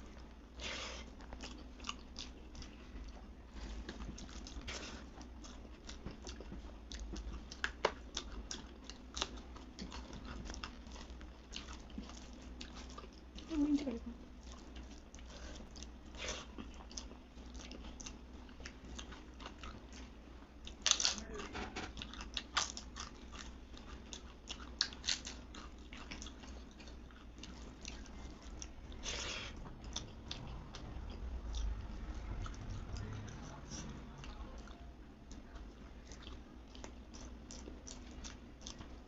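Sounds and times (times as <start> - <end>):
food crunches: 20.7 - 21.2, 21.8 - 28.7.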